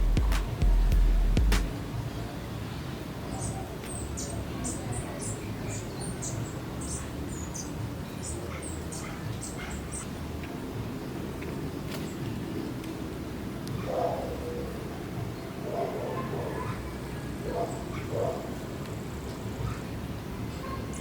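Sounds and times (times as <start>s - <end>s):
low background noise: 0.0s - 21.0s.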